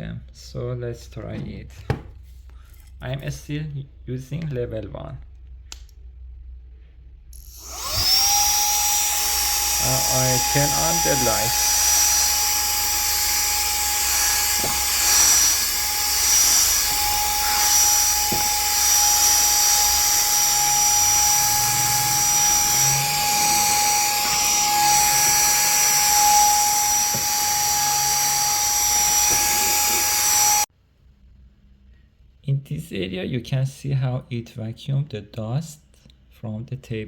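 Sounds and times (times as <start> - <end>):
handheld vacuum motor whine: 7.3 - 30.7
vacuum nozzle knocking: 7.7 - 30.6.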